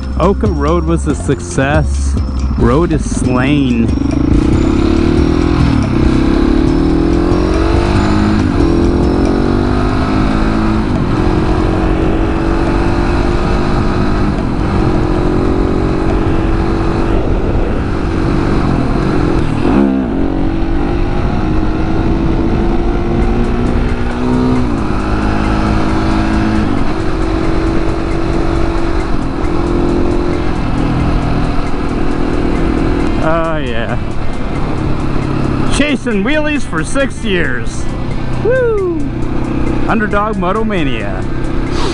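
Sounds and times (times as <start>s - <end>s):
motorcycle engine accelerating: 0.0s - 41.9s
wind rumble on microphone: 13.9s - 23.1s.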